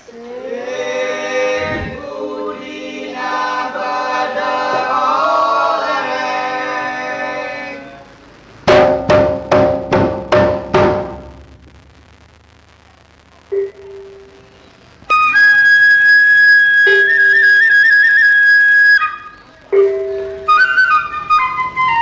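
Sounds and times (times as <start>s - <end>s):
ringing percussion strokes: 19.7s - 20.8s.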